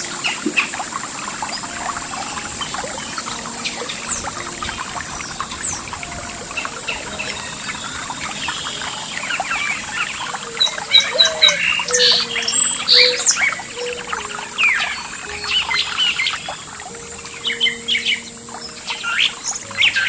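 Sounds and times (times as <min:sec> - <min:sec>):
birds singing and chirping: 0:00.0 - 0:20.0
thin steady high tone: 0:00.0 - 0:20.0
trickling water: 0:00.0 - 0:20.0.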